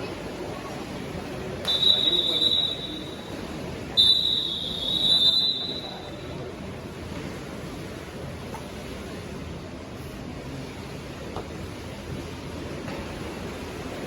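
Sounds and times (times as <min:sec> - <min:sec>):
background crowd hubbub: 0:00.0 - 0:14.0
referee's whistle blasts: 0:01.6 - 0:03.4, 0:04.0 - 0:06.3.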